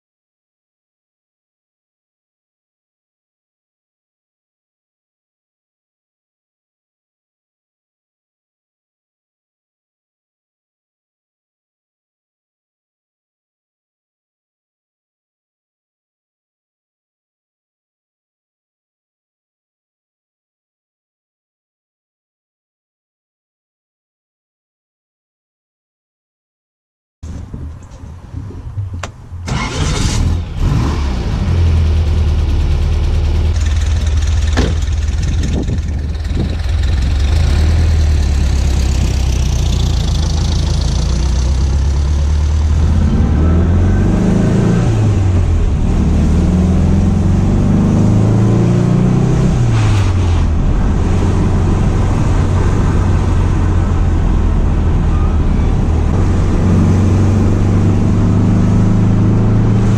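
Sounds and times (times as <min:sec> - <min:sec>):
car engine accelerating through gears: 0:29.4 - 0:59.9.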